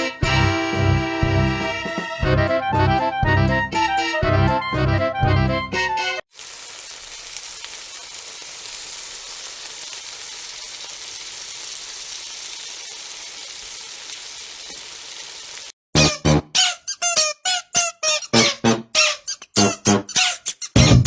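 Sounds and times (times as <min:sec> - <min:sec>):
music: 0:00.0 - 0:06.2, 0:16.0 - 0:21.0.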